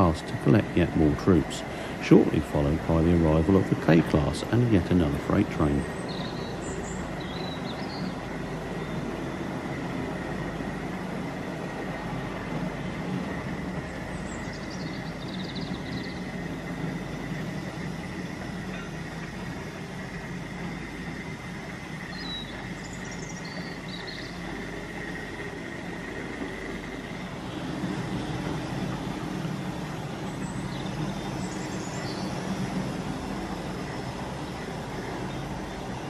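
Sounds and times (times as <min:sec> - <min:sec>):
faint high whine: 0:00.0 - 0:36.0
freight train rumble: 0:00.0 - 0:36.0.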